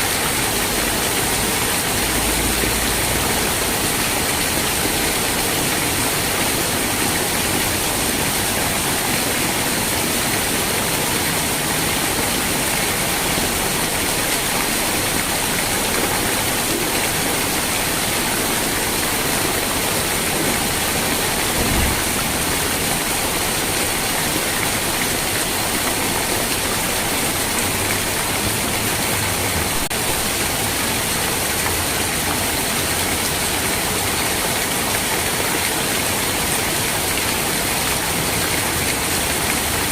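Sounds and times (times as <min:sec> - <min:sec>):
heavy rain: 0:00.0 - 0:39.9
low thump: 0:21.5 - 0:22.4.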